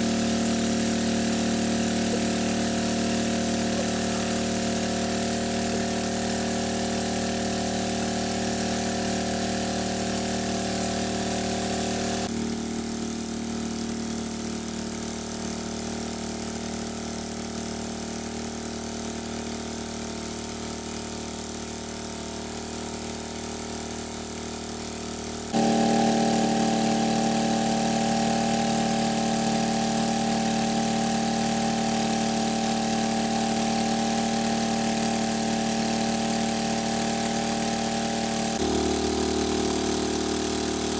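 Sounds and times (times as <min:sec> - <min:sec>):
engine droning: 0:25.6 - 0:40.9.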